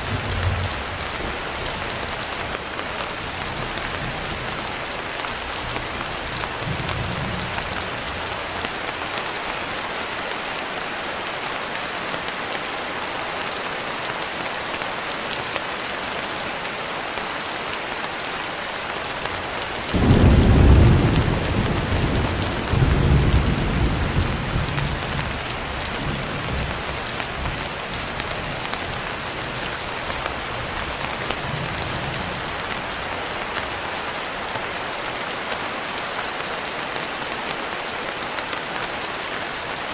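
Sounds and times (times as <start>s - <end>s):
thunder rumbling: 0.0s - 2.0s, 19.8s - 33.1s
heavy rain hissing: 0.0s - 39.9s.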